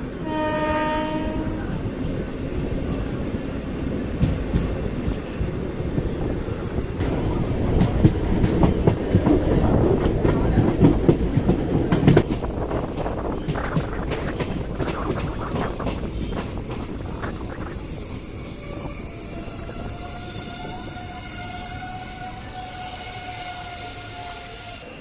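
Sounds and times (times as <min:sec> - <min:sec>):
train wheels rumbling: 0:00.0 - 0:25.0
rail clicks and knocks: 0:04.0 - 0:17.8.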